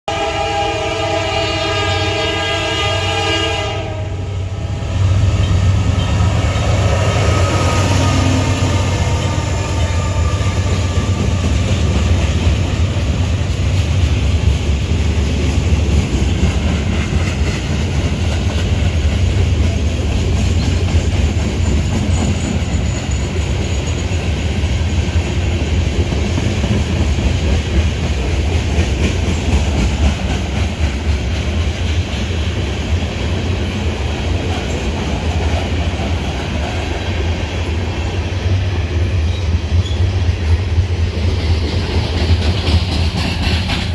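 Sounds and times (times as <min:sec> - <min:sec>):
train horn: 0:00.0 - 0:11.8
train passing rumble: 0:00.1 - 0:43.9.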